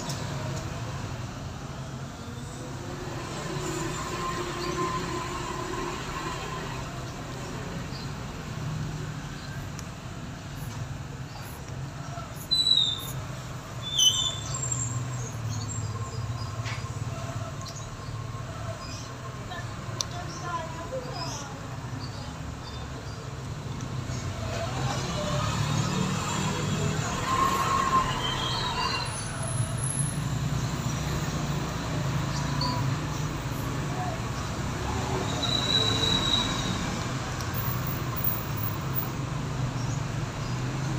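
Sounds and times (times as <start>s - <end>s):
low rumble of traffic: 0.0s - 40.9s
brief high squeals: 13.8s - 15.0s.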